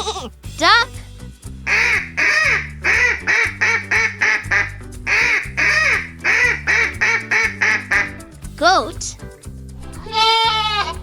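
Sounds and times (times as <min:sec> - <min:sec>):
background music with bass: 0:00.0 - 0:11.0
duck quacking: 0:01.7 - 0:08.2.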